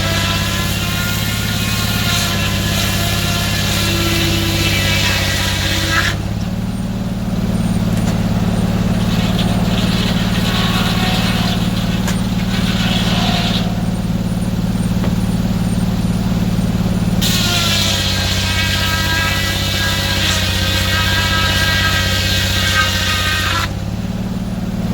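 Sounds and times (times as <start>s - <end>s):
sawmill engine humming: 0.0s - 24.9s.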